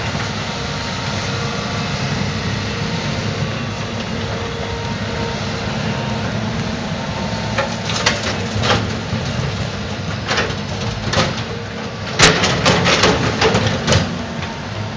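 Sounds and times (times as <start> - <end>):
excavator engine running: 0.0 - 14.9
metallic clanks and knocks: 7.6 - 14.2.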